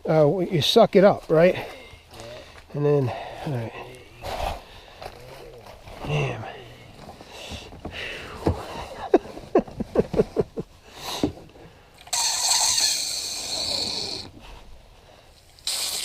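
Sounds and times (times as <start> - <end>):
squeaky hand pump strokes: 12.0 - 14.4, 15.6 - 16.0
rushing water hiss: 15.6 - 16.0.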